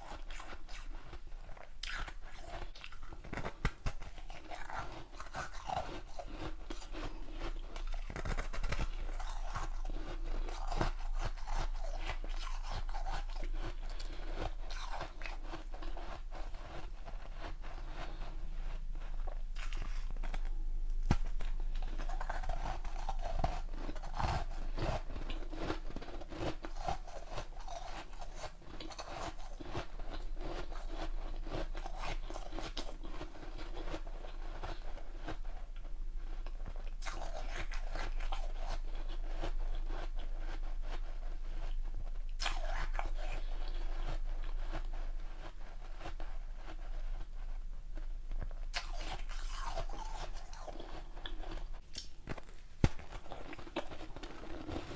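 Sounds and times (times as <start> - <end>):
person crunching ice: 1.8 - 16.7, 19.2 - 33.9, 48.8 - 51.6.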